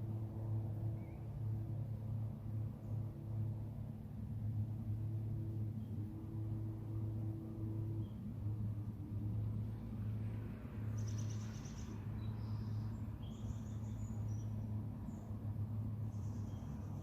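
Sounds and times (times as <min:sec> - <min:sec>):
steady low rumble: 0:00.0 - 0:17.0
bird chirps and trills: 0:10.9 - 0:15.3, 0:16.1 - 0:17.0.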